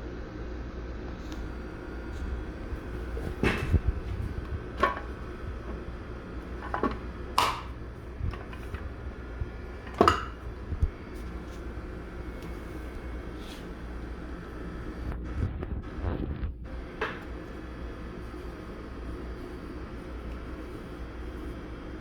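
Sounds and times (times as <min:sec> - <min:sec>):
steady low hum: 0:00.0 - 0:22.0
hard objects knocking and clattering: 0:02.8 - 0:11.3.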